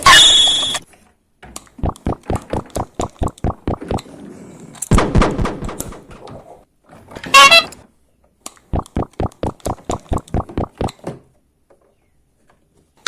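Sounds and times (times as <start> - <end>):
rapid sharp pops: 1.8 - 4.0, 4.9 - 6.2, 8.7 - 11.0.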